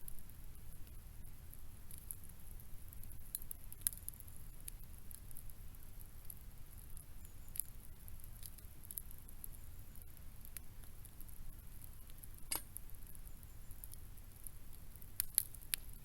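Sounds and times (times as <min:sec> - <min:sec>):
faint crackles and clicks: 0:00.0 - 0:16.0.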